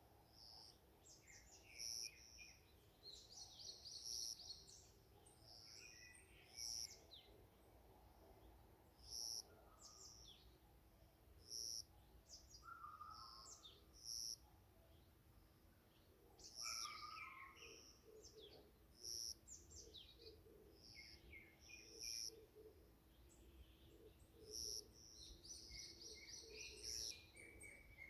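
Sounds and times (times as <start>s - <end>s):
birds chirping and trilling: 16.4s - 22.4s, 23.2s - 28.0s.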